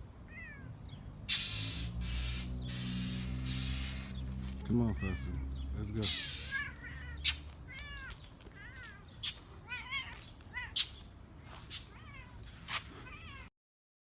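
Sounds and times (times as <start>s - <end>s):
cat meowing: 0.3s - 0.7s, 4.9s - 10.9s, 11.7s - 12.4s.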